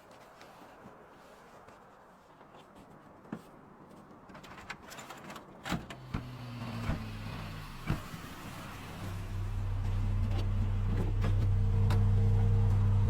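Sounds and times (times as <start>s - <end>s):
low mechanical hum: 5.9s - 13.0s.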